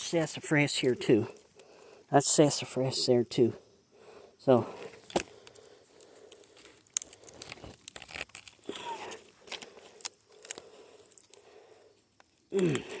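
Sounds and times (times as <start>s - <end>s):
plant stems snapping and rustling: 5.1s - 11.4s.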